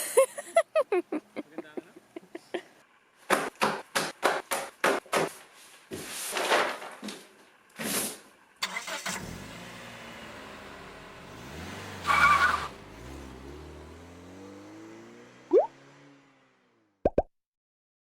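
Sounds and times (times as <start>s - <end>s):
car engine cranking and revving: 8.4s - 17.0s.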